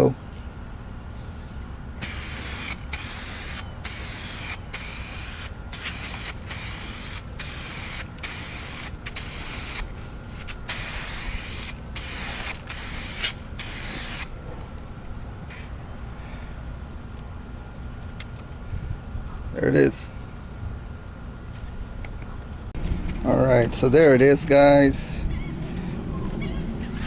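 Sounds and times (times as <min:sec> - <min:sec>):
aerosol can spraying: 0:02.0 - 0:09.9, 0:10.7 - 0:14.3.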